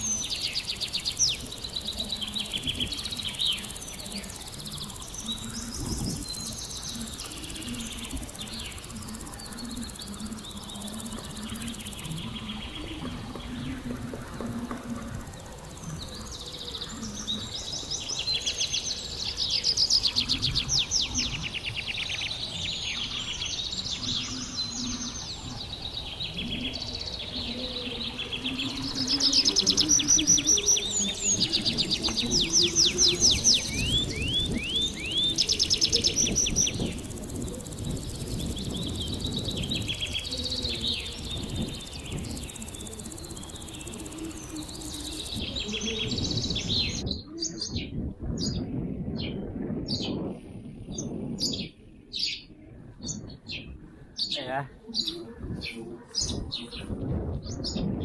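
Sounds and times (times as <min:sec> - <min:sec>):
songbirds singing trills: 0:00.0 - 0:58.0.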